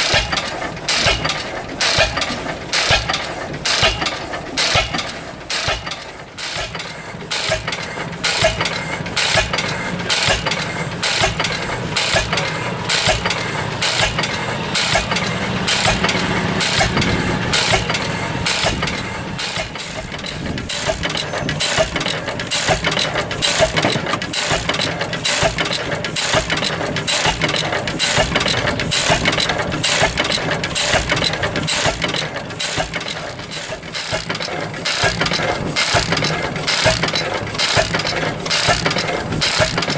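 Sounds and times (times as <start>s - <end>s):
stationary engine clattering: 0.0s - 39.9s
low engine hum: 9.9s - 23.4s.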